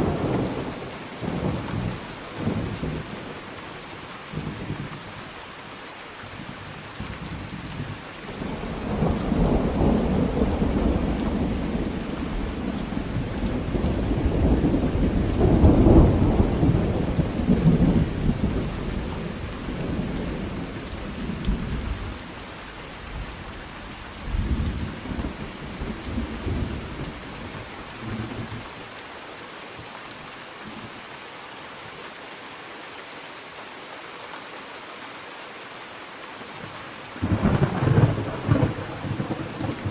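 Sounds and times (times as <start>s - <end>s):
rain falling: 0.0s - 39.9s
rolling thunder: 8.4s - 21.9s, 37.2s - 39.9s.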